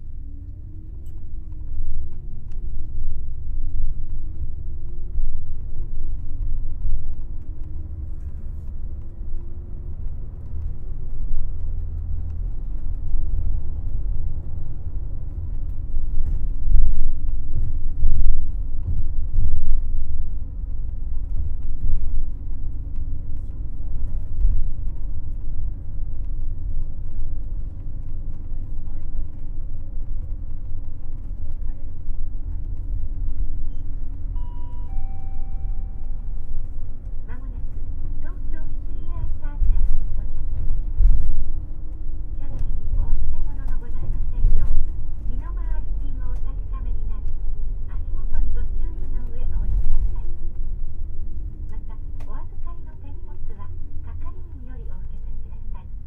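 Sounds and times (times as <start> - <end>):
road jolts and thumps: 0.0 - 34.9, 35.7 - 56.0
bus engine drone: 0.0 - 56.0
road rumble: 0.0 - 56.0.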